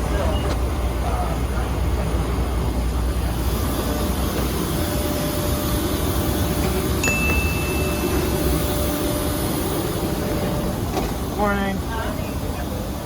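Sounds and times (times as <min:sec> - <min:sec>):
high cabin chime: 0:07.0 - 0:09.2.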